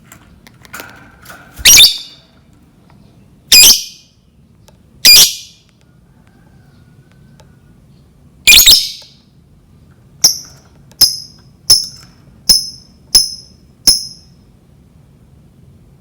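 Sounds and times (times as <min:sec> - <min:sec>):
bird high-pitched chirps: 0:01.6 - 0:02.2, 0:03.5 - 0:04.1, 0:05.0 - 0:05.6, 0:08.5 - 0:09.2, 0:10.2 - 0:14.3.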